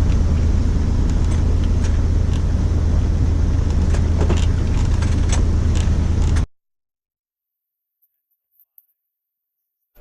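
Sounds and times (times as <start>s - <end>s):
boat engine droning: 0.0s - 6.4s.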